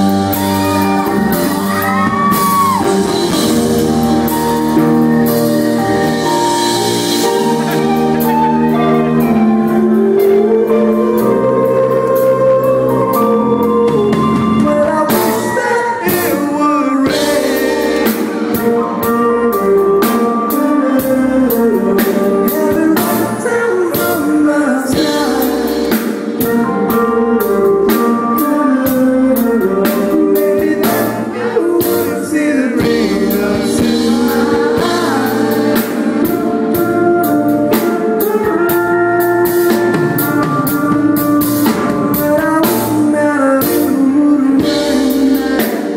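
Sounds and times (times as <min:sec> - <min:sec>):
drum beat: 0:00.0 - 0:05.4
live soul band: 0:00.0 - 0:45.9
person singing: 0:00.0 - 0:45.9.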